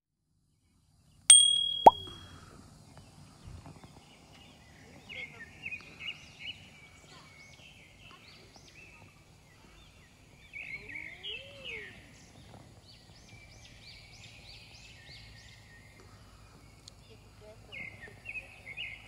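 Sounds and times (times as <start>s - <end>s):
faint outdoor background noise: 0.3s - 19.0s
small birds chirping and trilling: 4.0s - 19.0s.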